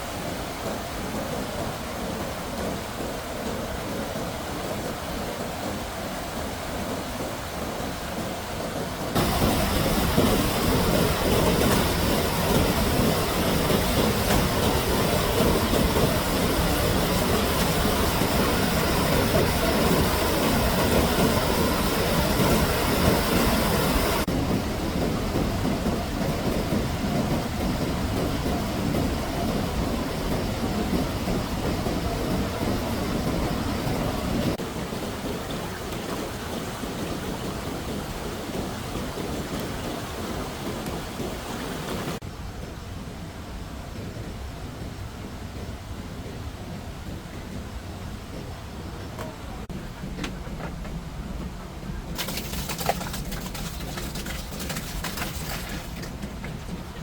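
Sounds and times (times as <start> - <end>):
rushing floodwater and rain: 0.0 - 57.0.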